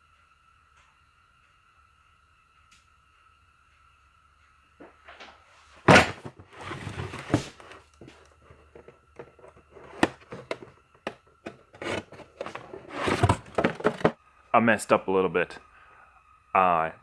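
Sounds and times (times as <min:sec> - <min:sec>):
faint high whine: 0:00.0 - 0:17.0
objects knocking and clanking: 0:04.8 - 0:14.2.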